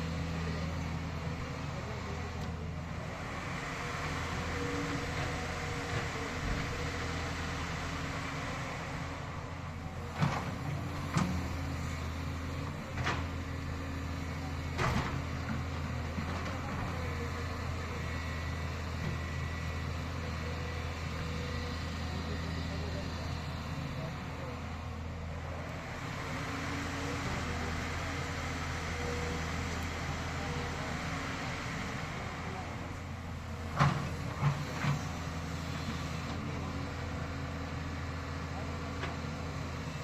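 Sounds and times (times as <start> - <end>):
low engine-like hum: 0.0 - 40.0.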